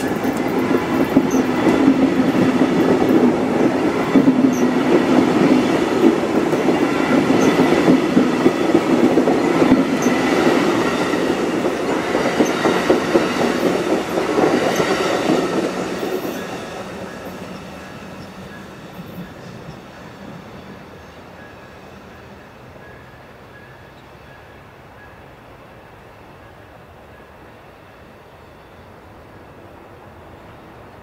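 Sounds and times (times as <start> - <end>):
train wheels clicking over rail joints: 0.0 - 21.6.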